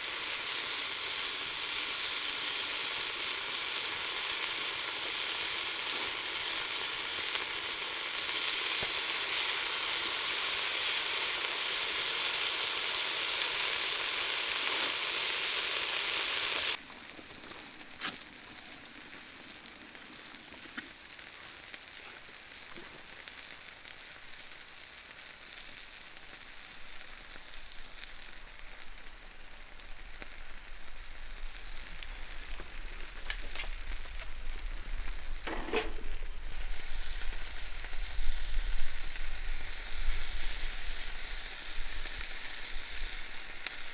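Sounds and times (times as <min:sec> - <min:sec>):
offal frying and sizzling: 0:00.0 - 0:43.9
sharp pops of frying: 0:02.0 - 0:12.7, 0:20.0 - 0:24.6, 0:30.1 - 0:43.9.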